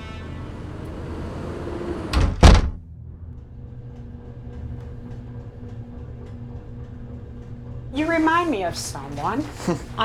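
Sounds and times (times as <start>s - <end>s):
low hum: 0.0s - 10.0s
door shutting: 0.7s - 2.9s.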